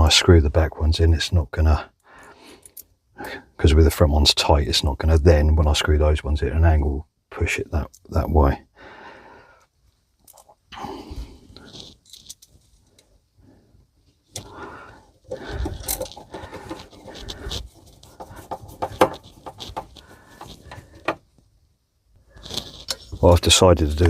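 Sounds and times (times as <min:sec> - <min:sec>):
clicks and scrapes of tools: 0:11.6 - 0:13.1, 0:15.2 - 0:21.2, 0:22.3 - 0:23.2
screws and hand tools rattling: 0:15.2 - 0:21.2.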